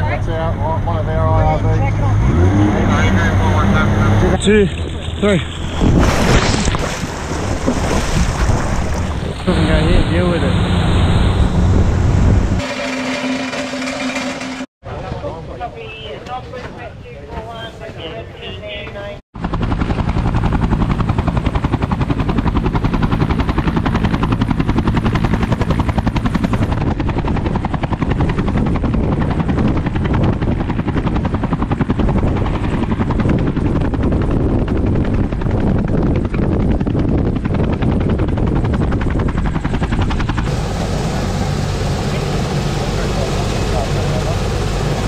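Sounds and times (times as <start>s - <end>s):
helicopter rotor blades beating: 8.9s - 14.7s, 19.4s - 45.0s.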